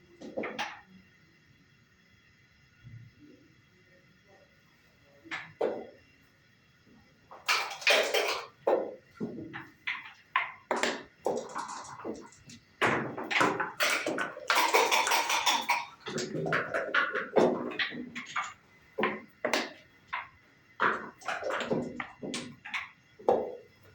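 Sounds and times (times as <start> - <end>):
dice rattling on wooden board: 7.4 - 8.8, 9.9 - 23.6
checkers clacking on wooden board: 7.4 - 23.7.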